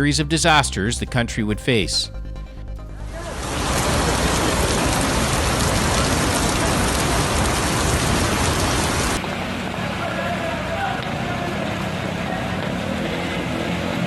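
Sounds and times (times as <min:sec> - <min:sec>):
heavy rain on hard surfaces: 0:03.1 - 0:14.0.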